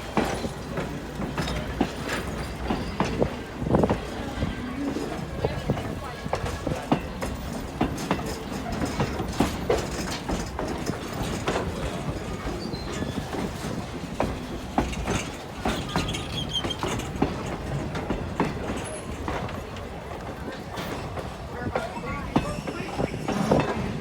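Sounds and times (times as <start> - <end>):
train rumble: 0.0 - 24.0
train wheels clicking over rail joints: 0.0 - 24.0
wheel squeal: 12.5 - 13.4, 15.7 - 17.2.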